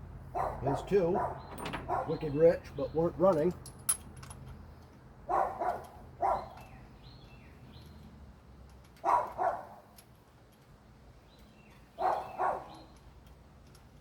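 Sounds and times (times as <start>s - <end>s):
dog barking: 0.3s - 2.2s, 5.3s - 6.6s, 9.0s - 9.8s, 12.0s - 12.8s.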